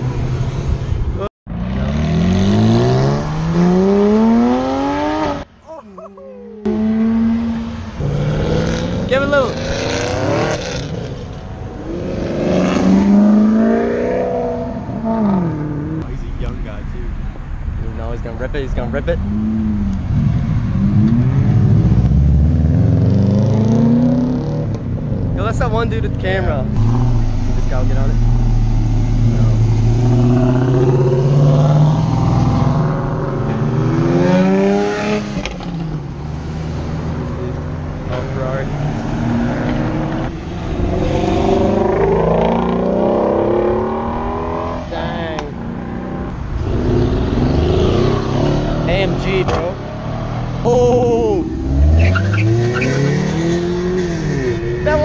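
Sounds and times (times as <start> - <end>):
car engine accelerating: 0.0 - 5.5, 6.6 - 17.1, 17.8 - 55.0
low engine drone: 26.6 - 33.8.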